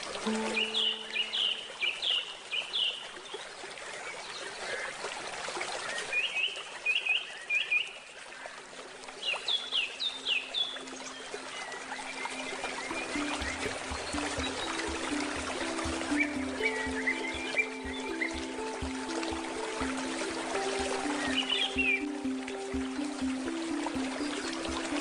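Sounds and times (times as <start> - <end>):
running water trickling: 0.0 - 25.0
songbird chirping: 0.2 - 3.4, 9.2 - 25.0.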